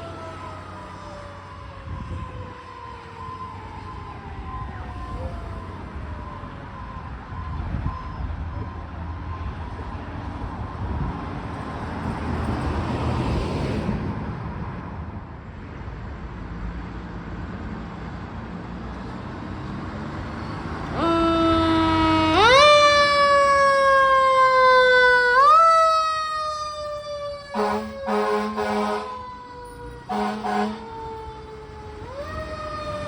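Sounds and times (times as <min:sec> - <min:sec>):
fire engine running: 0:00.0 - 0:33.0
road noise: 0:00.0 - 0:33.0
electronic siren rising: 0:20.4 - 0:33.0.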